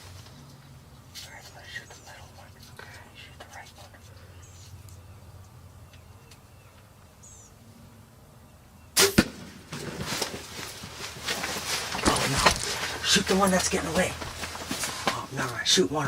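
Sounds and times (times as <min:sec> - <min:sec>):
faint bird chirps: 0:01.3 - 0:07.6
rustling and thumps: 0:09.6 - 0:15.3.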